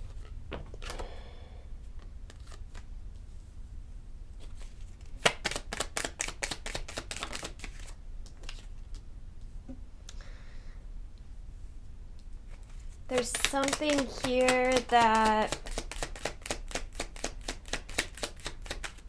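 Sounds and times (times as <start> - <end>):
cards being shuffled: 2.2 - 2.9, 4.4 - 9.1, 12.5 - 19.0.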